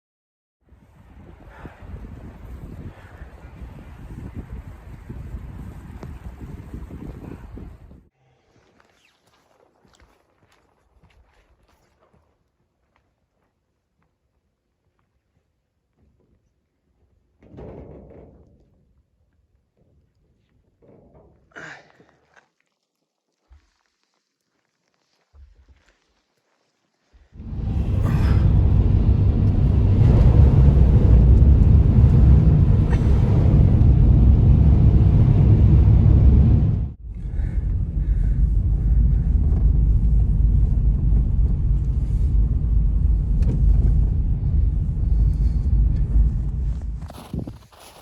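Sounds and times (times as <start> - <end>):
wind buffeting microphone: 0.7 - 8.1, 27.4 - 48.0.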